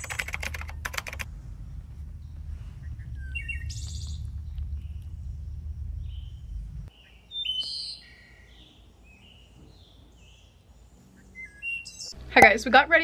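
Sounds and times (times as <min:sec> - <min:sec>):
keyboard typing clicks: 0:00.0 - 0:01.2
low background rumble: 0:00.0 - 0:07.0
small birds chirping: 0:00.0 - 0:12.6.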